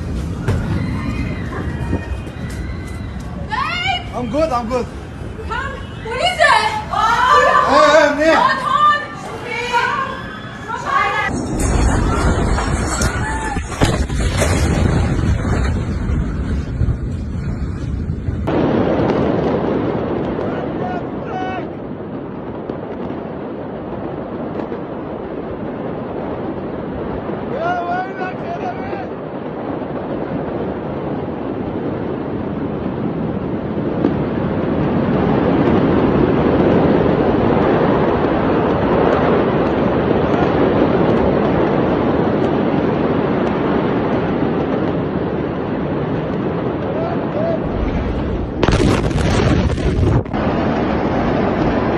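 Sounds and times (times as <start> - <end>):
explosion deep rumble: 0.0 - 6.0, 11.2 - 27.7, 28.4 - 51.9
loud steady rushing noise: 0.0 - 18.7
explosion sharp cracks: 11.2 - 27.6, 28.8 - 51.9.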